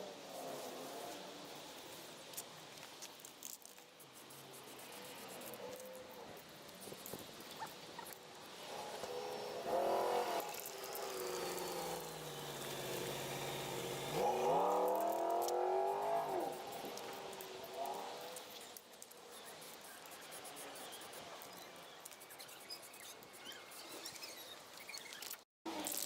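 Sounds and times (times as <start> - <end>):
engine rising and falling in pitch: 8.6 - 18.3.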